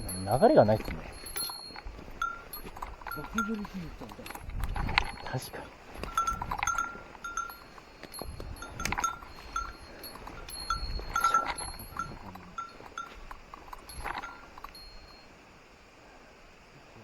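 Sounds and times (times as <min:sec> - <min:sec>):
small metal bell ringing: 0:00.0 - 0:15.3.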